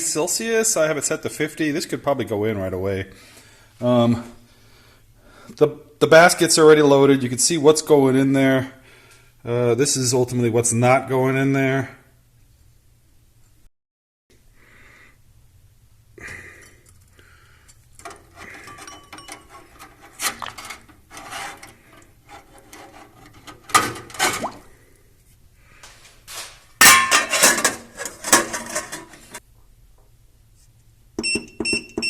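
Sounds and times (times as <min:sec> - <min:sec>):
metal clattering: 0:26.8 - 0:29.4.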